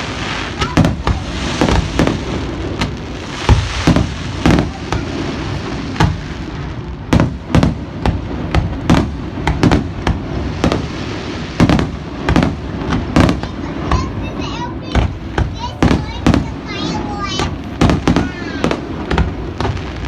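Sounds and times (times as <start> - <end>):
fireworks bursting bangs: 0.0 - 20.0
fireworks rumble and crackle: 0.0 - 20.0.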